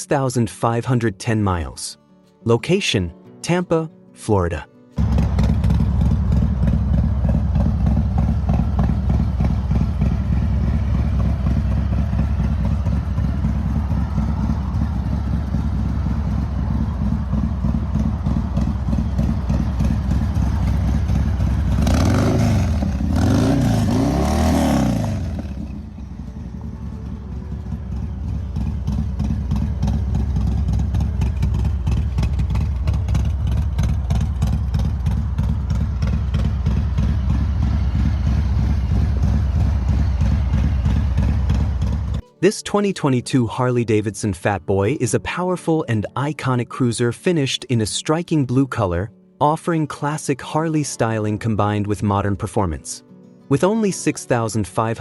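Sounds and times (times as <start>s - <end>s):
motorcycle engine idling and revving: 5.0s - 42.2s.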